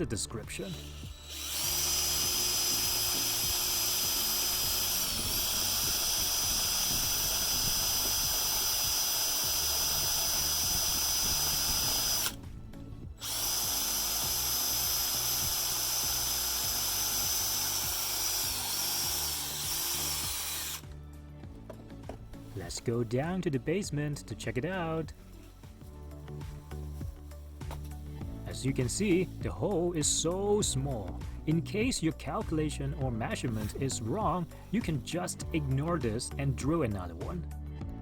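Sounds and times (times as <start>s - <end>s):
background music: 0.0s - 38.0s
electric drill whining: 0.6s - 21.0s.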